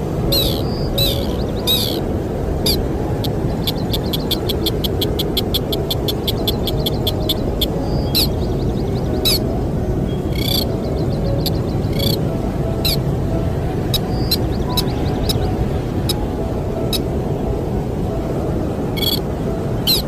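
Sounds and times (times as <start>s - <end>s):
low wind rumble: 0.0s - 20.0s
bird chirping: 0.3s - 2.0s, 2.6s - 9.4s, 10.1s - 12.2s, 13.9s - 15.5s, 19.0s - 19.2s
fast run of bird notes: 0.3s - 2.0s, 10.2s - 12.2s.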